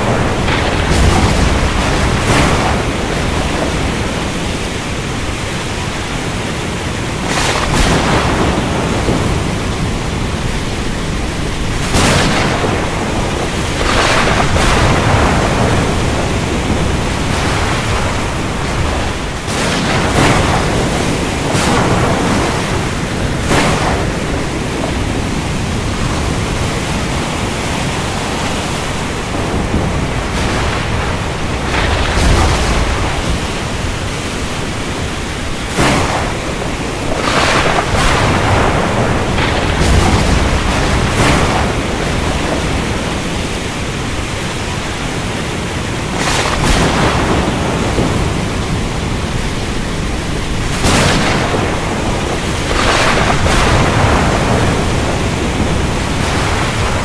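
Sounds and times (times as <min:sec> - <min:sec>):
sea noise: 0:00.0 - 0:57.0
steady rain: 0:00.0 - 0:57.0
thunder crashing and rumbling: 0:00.0 - 0:57.0.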